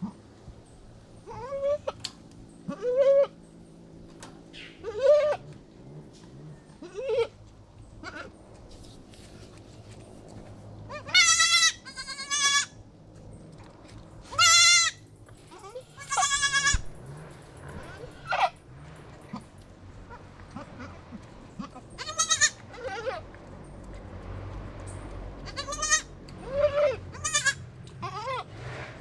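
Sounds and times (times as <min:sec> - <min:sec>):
goats bleating: 0:02.7 - 0:03.4, 0:04.8 - 0:05.5, 0:06.8 - 0:07.4, 0:08.0 - 0:08.4, 0:10.9 - 0:12.8, 0:14.3 - 0:16.9, 0:20.1 - 0:23.2, 0:25.4 - 0:28.5.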